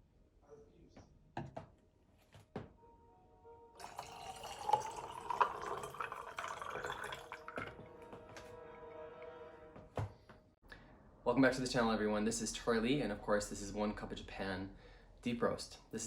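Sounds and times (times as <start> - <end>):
soft background music: 2.2 - 10.6
liquid dripping: 3.8 - 7.8
liquid poured into vessel: 3.8 - 7.9.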